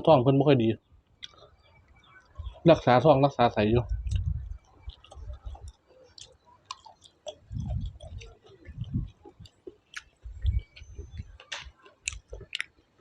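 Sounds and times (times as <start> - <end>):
person chewing food: 1.2 - 1.6, 3.9 - 13.0
wet mouth clicks and smacks: 3.9 - 12.8.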